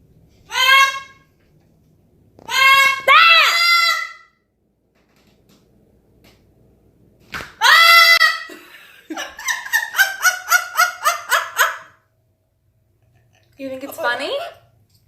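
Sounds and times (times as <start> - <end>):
parrot calling: 0.5 - 1.3, 2.4 - 4.4, 7.6 - 8.5.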